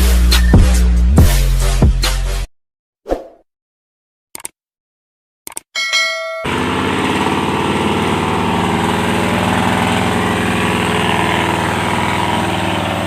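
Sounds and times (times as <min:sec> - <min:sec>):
truck engine running loudly: 0:06.4 - 0:13.0.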